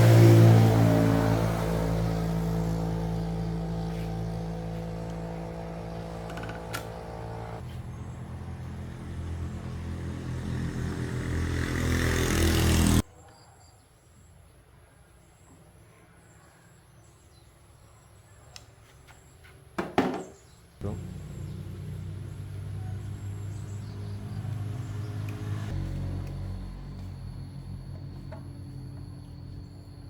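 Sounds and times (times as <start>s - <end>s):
small motorcycle engine running: 0.0s - 13.0s, 20.8s - 30.0s
faint insect chirping: 26.5s - 30.0s.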